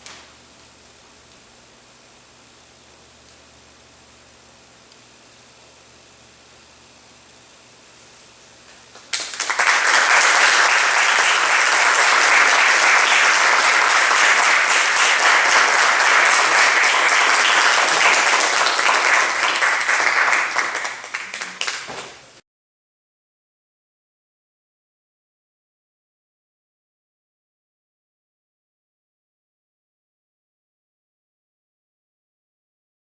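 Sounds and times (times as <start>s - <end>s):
audience applause: 9.0s - 22.3s.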